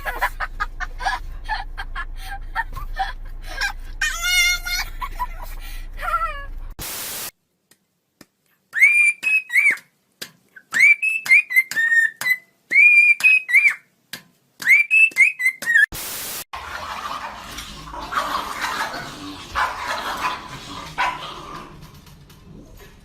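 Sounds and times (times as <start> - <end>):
burst of hiss: 6.8 - 7.4.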